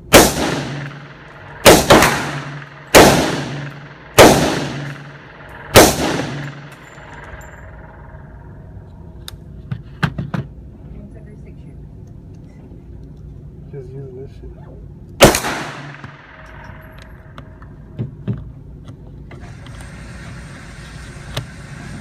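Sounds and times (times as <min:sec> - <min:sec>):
echoing gunshots: 0:00.0 - 0:08.7, 0:15.2 - 0:17.6.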